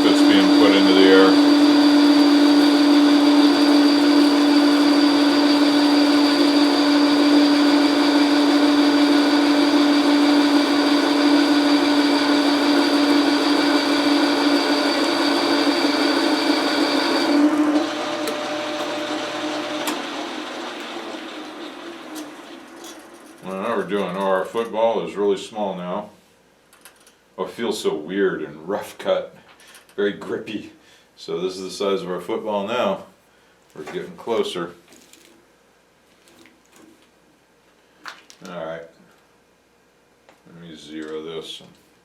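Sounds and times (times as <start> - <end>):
metal lathe humming and whining: 0.0 - 23.6.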